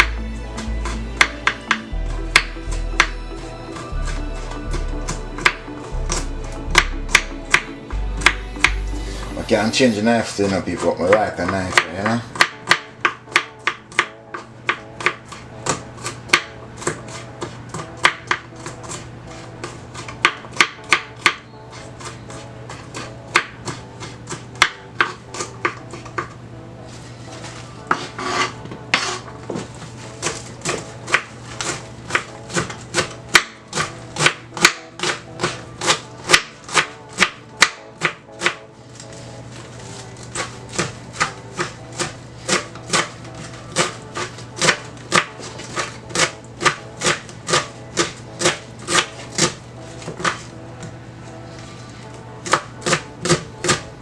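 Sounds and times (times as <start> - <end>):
knife chopping on cutting board: 11.7 - 14.1, 30.2 - 38.7, 39.9 - 50.4, 52.4 - 53.9
knife scraping board: 26.9 - 50.5.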